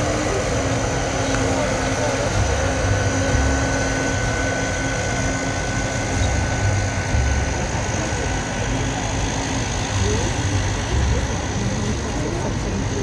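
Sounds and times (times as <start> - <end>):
ferry engine rumble: 0.0 - 13.0
thin high whine: 0.0 - 13.0.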